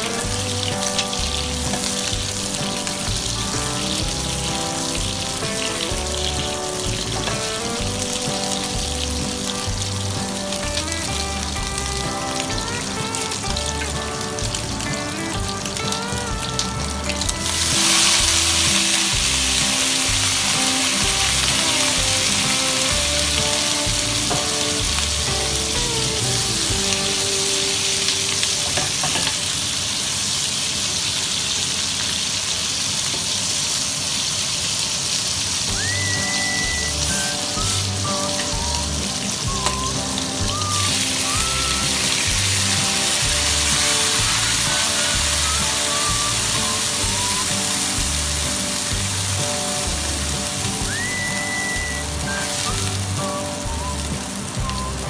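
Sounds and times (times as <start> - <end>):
background music: 0.0 - 29.7, 35.7 - 55.0
meat sizzling in a wok: 0.0 - 55.0.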